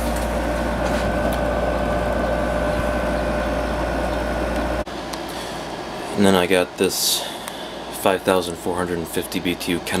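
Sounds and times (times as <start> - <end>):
air conditioner fan rushing: 0.0 - 10.0
constant hum: 0.0 - 10.0.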